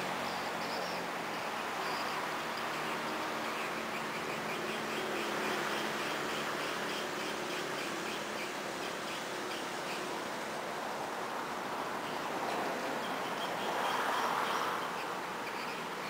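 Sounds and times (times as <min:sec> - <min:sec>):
recorded bird twittering: 0:00.0 - 0:10.3, 0:11.8 - 0:16.0.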